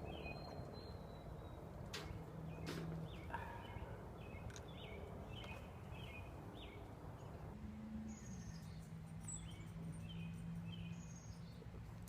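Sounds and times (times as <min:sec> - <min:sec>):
songbird chirping falling notes: 0:00.0 - 0:07.5.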